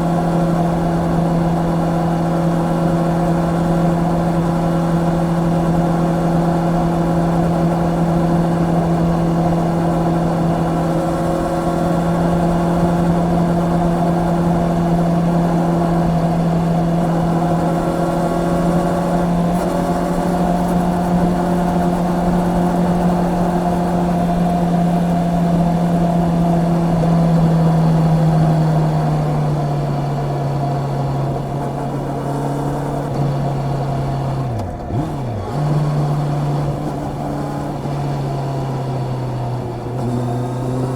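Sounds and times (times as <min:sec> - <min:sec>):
wind and road noise: 0:00.0 - 0:40.9.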